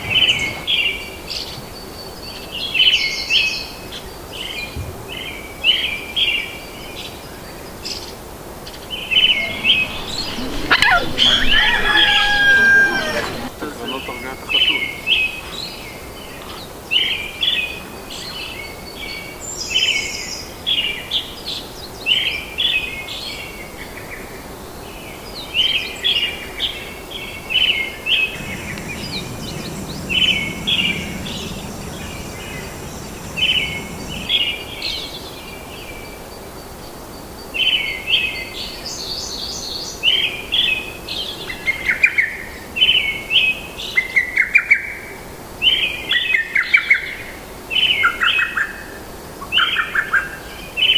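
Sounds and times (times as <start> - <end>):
birds chirping: 0.0 - 21.4, 28.1 - 36.8
forest background hiss: 0.0 - 50.9.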